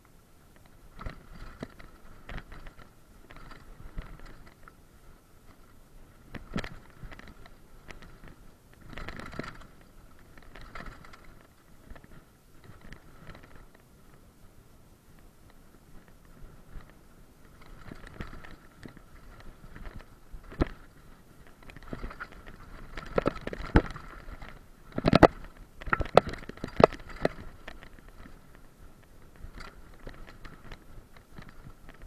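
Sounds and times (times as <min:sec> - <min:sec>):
crunching and scraping: 0:15.5 - 0:32.0.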